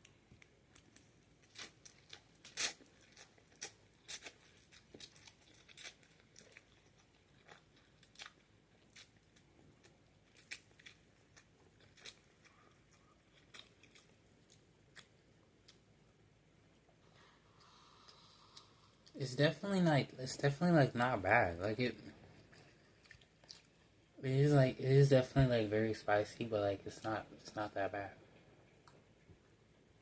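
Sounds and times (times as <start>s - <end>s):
person chewing noodles: 0.0s - 16.0s, 16.7s - 19.2s, 22.0s - 24.0s.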